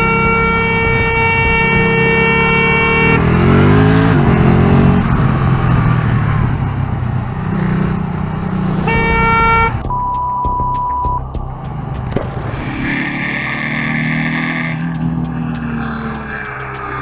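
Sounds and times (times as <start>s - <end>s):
vehicle horn blaring: 0.0s - 4.5s, 8.6s - 11.0s
engine revving: 0.0s - 9.9s, 11.3s - 17.0s.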